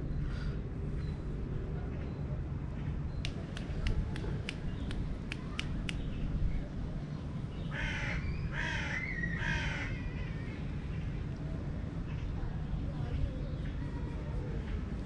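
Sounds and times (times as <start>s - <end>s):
sharp clicks: 3.2s - 6.1s
bird cawing: 7.7s - 10.0s.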